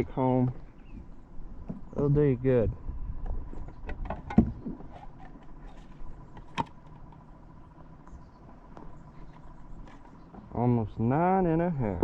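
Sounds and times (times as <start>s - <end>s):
knocks and clicks of gear: 3.2s - 7.3s.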